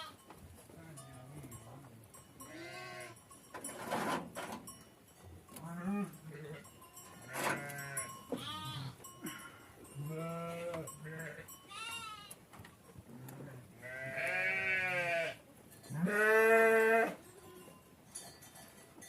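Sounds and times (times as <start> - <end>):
sheep and goats bleating: 0.0 - 0.3, 2.4 - 3.2, 5.6 - 12.4, 13.1 - 17.8.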